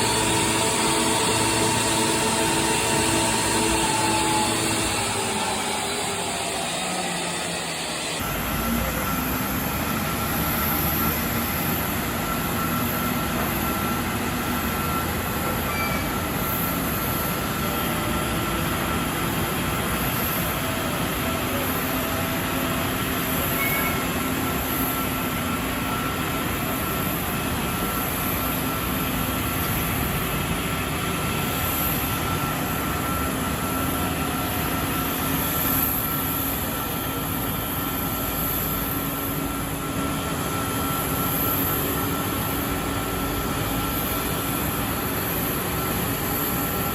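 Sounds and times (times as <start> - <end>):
jet engines roaring: 0.0 - 8.4.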